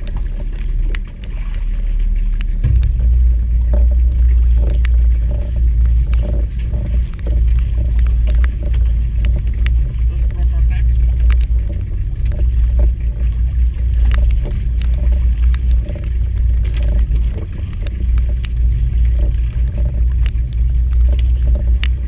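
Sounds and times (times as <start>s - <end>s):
boat engine low rumble: 0.0s - 22.0s
sharp ticks: 4.6s - 10.5s.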